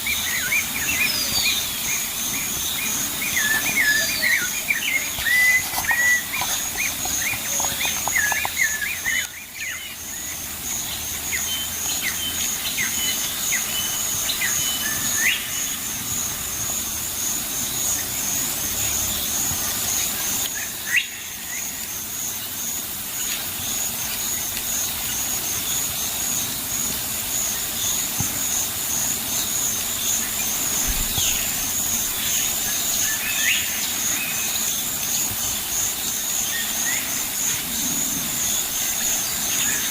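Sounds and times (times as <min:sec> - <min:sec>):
pulsing high insect trill: 0:00.0 - 0:39.9.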